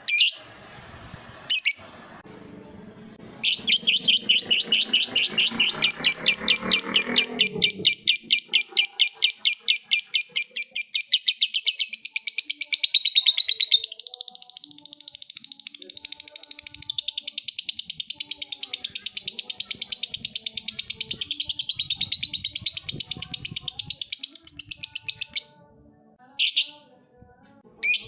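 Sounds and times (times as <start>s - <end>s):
lovebird shrill chatter: 1.5s - 1.9s, 3.4s - 12.0s.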